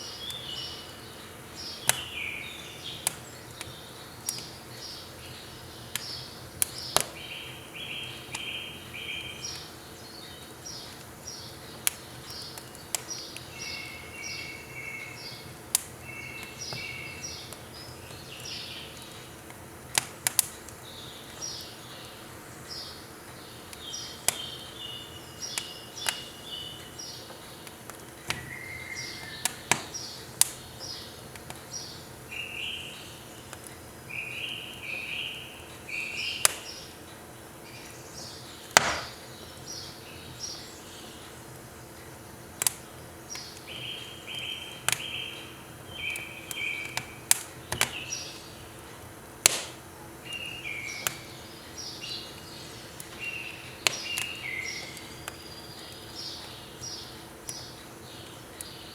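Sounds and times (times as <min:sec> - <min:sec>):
firewood crackling in stove: 0:00.0 - 0:58.9
small birds chirping: 0:00.0 - 0:58.9.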